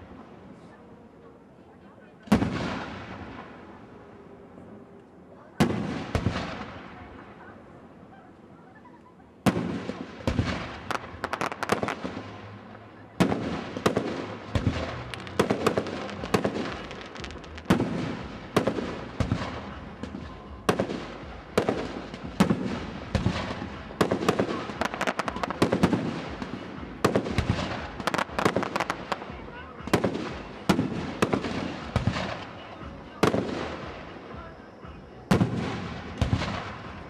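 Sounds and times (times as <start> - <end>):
firework crackle: 9.4 - 37.0
firework shells bursting: 9.5 - 12.4, 13.2 - 19.7, 21.6 - 29.2.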